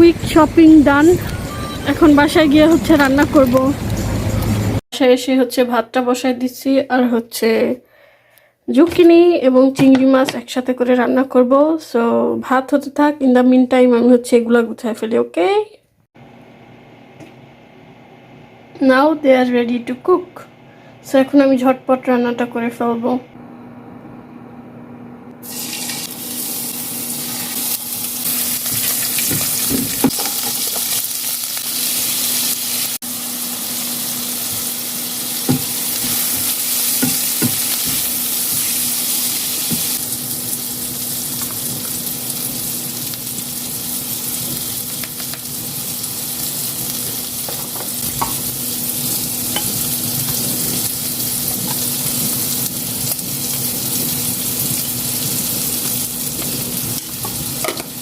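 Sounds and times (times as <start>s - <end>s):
food sizzling in a pan: 25.4s - 58.0s.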